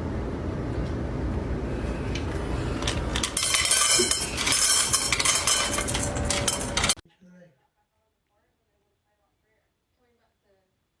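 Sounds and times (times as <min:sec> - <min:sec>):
hard objects clinking and clattering: 0:02.2 - 0:07.0.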